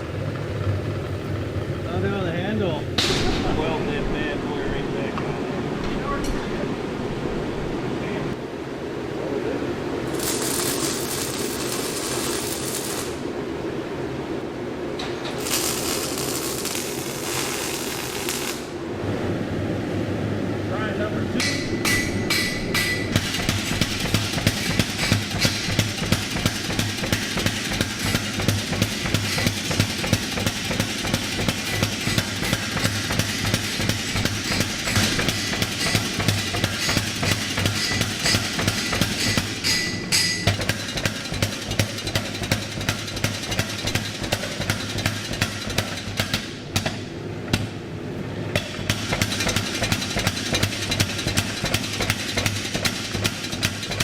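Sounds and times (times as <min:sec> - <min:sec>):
power hammer pounding metal: 0:21.4 - 0:47.7, 0:48.6 - 0:54.0.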